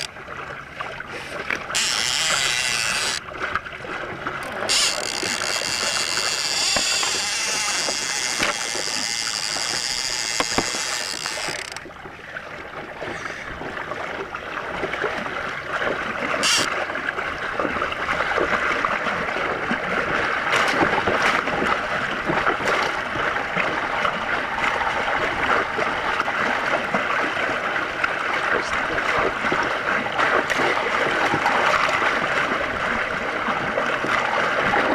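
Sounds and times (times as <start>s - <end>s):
water rushing along a hull: 0.0s - 34.9s
fishing reel drag buzzing: 1.2s - 3.3s, 4.4s - 11.9s, 16.4s - 16.7s.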